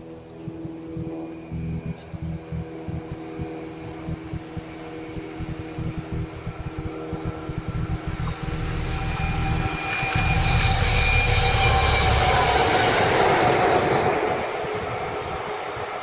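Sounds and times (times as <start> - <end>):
high rail whine: 0.0 - 16.0
train passing at speed: 9.4 - 16.0.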